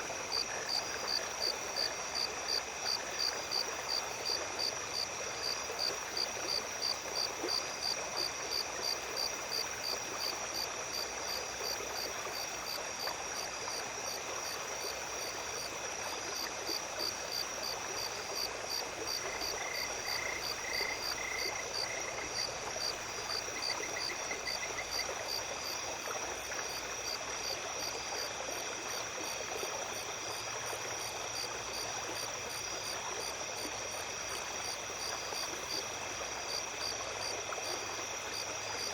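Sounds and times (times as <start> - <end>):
stream running: 0.0 - 38.9
insects chirping: 0.2 - 38.9
insects trilling: 16.7 - 28.4.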